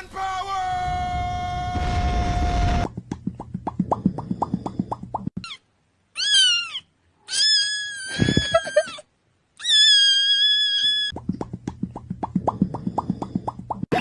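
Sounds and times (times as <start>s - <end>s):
cat meowing: 6.2s - 9.0s, 9.6s - 11.1s.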